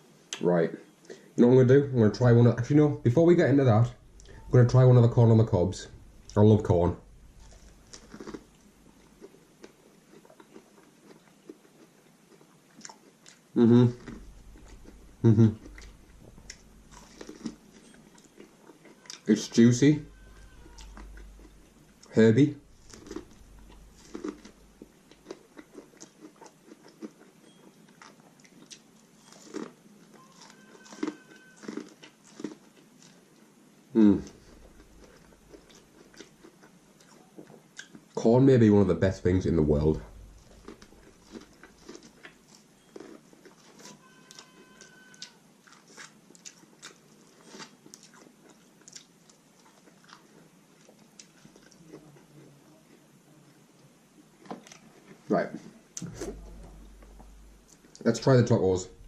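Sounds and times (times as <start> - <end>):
crunchy bites and chewing: 7.0 - 33.4, 34.1 - 38.2, 40.0 - 52.3.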